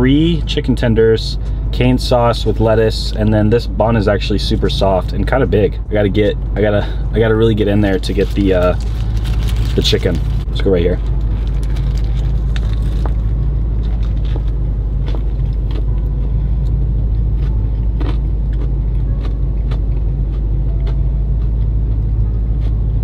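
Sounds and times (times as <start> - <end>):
car engine idling: 0.0 - 23.0
paper wrapper crackling: 7.8 - 14.4
chewing: 17.4 - 21.0.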